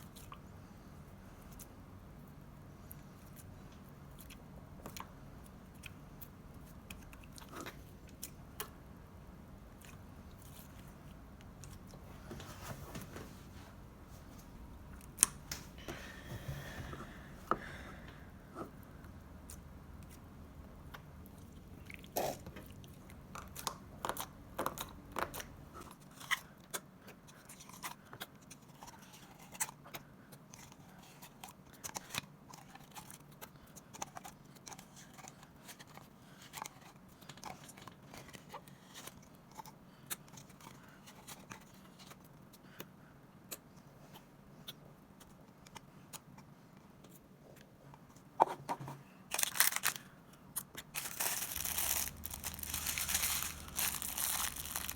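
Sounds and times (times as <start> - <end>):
slime squishing: 49.3 - 54.9.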